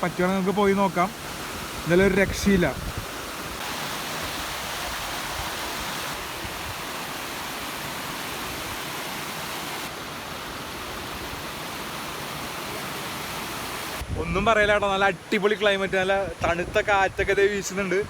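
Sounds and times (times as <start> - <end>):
water rushing over waterfall: 0.0 - 14.2.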